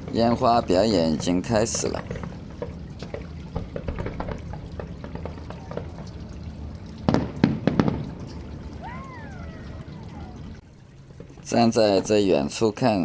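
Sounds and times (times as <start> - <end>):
distant fireworks pops and crackles: 0.0 - 8.6, 11.0 - 12.2
firework bangs: 3.5 - 5.9, 7.1 - 8.2.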